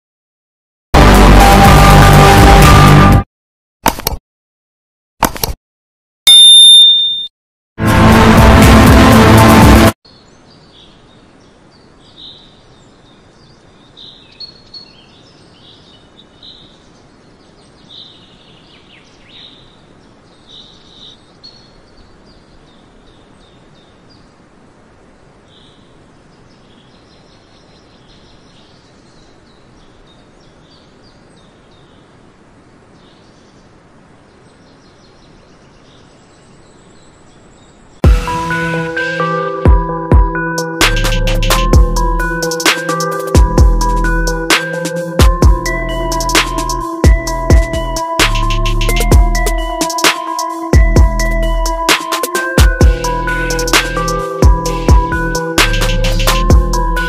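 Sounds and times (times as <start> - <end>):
birds chirping: 10.1 - 38.0, 42.4 - 57.0
steady background hiss: 10.1 - 38.0.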